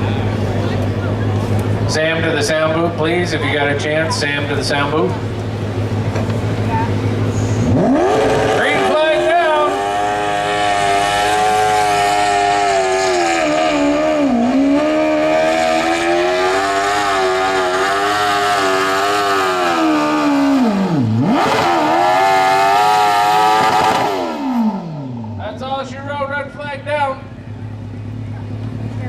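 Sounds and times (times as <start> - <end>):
lawn tractor engine at high revs: 7.6 - 24.9.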